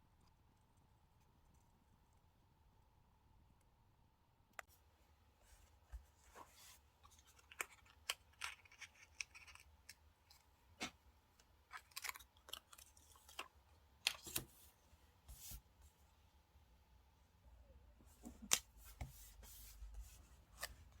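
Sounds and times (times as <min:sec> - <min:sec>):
paper and stickers handled: 0:05.7 - 0:15.7, 0:18.1 - 0:21.0.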